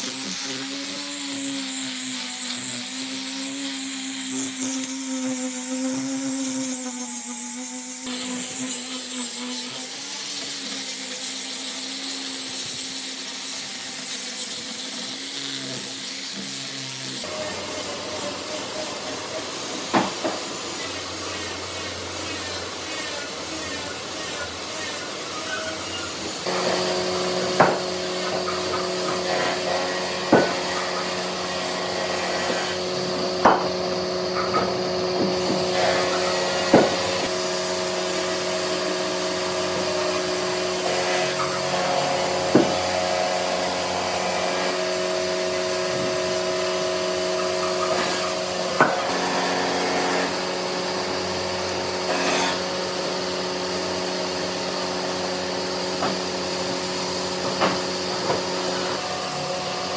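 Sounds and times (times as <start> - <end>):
power tool humming: 0.0 - 59.9
sharp wood knocks: 27.5 - 27.9.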